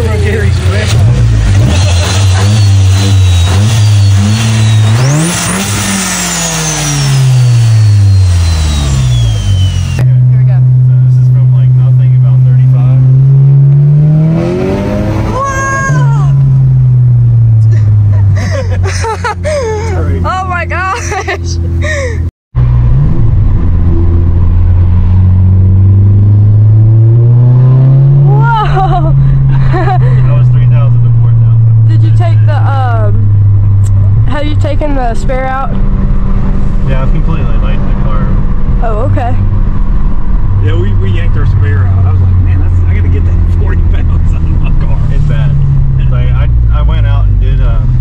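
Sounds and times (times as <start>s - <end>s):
high whine: 0.0s - 18.2s
car engine revving: 0.0s - 48.0s.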